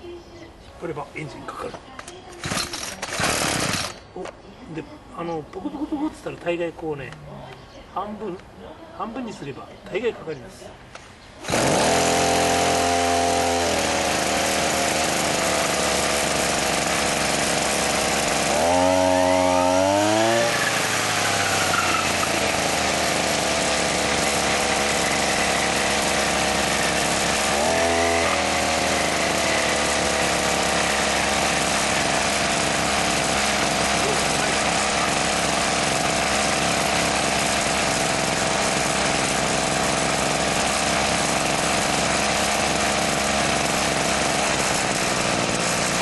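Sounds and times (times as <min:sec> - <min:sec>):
brush cutter engine revving: 0:02.4 - 0:04.1, 0:11.4 - 0:46.0.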